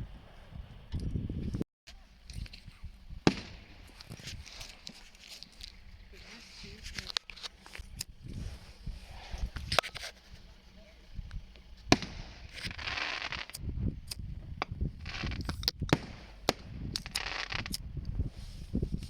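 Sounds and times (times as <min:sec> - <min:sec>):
fireworks crackling hiss: 0:02.0 - 0:19.0
firework shells banging: 0:02.2 - 0:05.9, 0:09.5 - 0:17.9.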